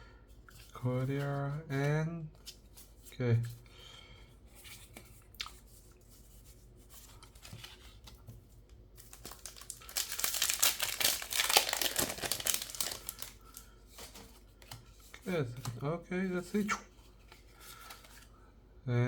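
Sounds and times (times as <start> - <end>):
faint handling sounds: 2.4 - 18.5
foil wrapper crinkling and tearing: 9.0 - 14.2.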